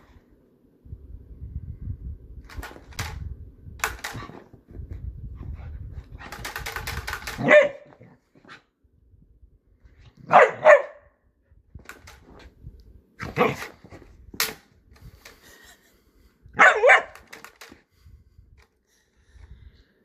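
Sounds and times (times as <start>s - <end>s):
sharp click: 3.8s - 4.3s
puppy barking: 7.4s - 8.0s, 10.2s - 11.1s, 16.6s - 17.2s.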